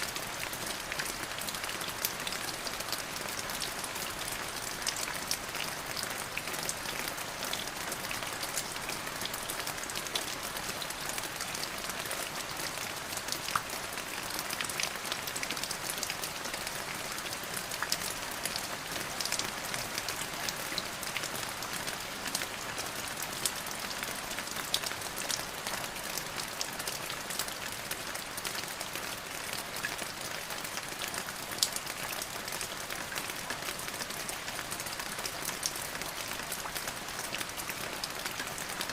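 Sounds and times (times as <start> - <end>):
steady rain hissing: 0.0 - 15.1
raindrops ticking on a surface: 0.0 - 38.9.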